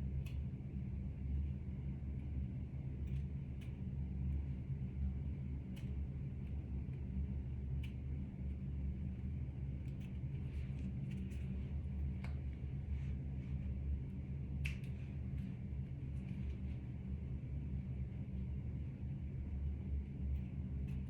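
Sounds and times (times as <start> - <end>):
steady low hum: 0.0 - 21.0
faint light clicks and taps: 12.1 - 12.6, 14.6 - 15.5.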